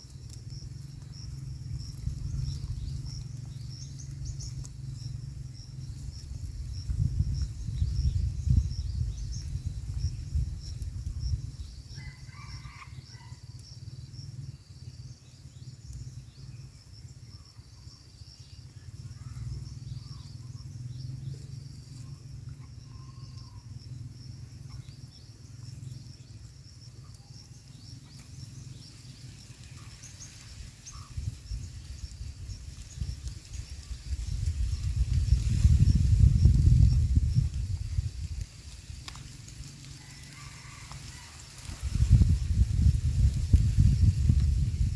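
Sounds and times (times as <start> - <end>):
insects chirring: 0.0 - 44.9.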